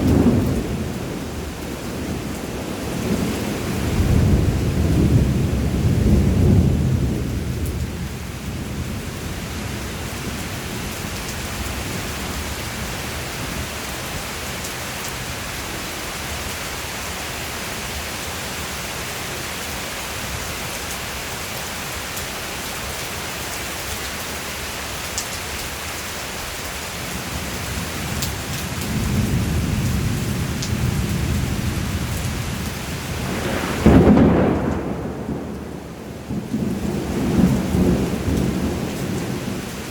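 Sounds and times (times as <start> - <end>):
thunder rumbling: 0.0 - 13.7, 27.2 - 39.9
steady rain falling: 0.0 - 39.9
sharp thunder clap: 33.0 - 39.3.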